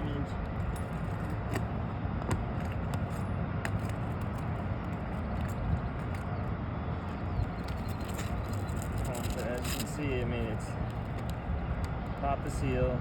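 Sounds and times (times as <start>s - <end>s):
steady low rumble: 0.0s - 13.0s
shingles clicking and crackling: 7.6s - 10.0s.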